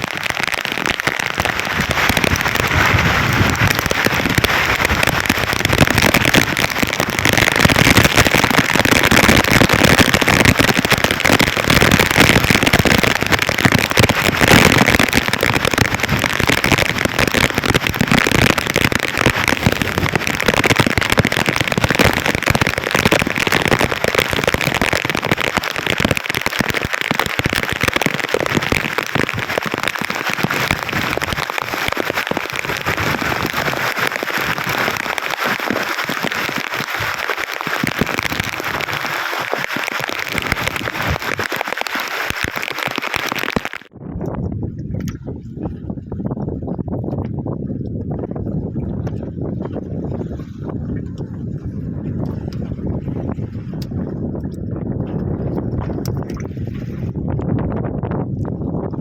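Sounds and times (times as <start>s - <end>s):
heavy rain falling: 0.0s - 44.0s.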